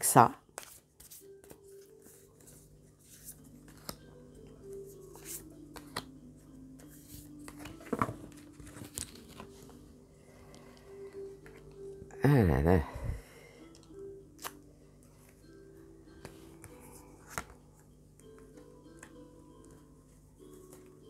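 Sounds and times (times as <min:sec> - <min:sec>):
cards rustling and clicking: 0:00.6 - 0:06.1, 0:06.8 - 0:09.8, 0:13.7 - 0:14.6, 0:16.2 - 0:19.2.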